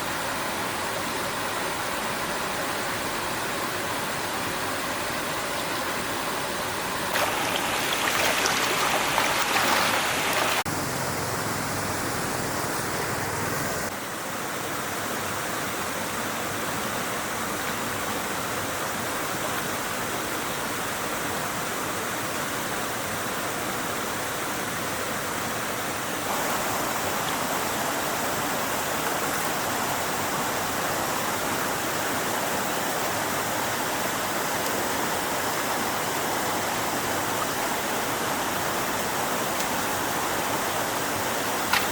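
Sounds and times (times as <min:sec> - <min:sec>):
stream flowing over rocks: 0:01.9 - 0:14.6, 0:25.8 - 0:41.9.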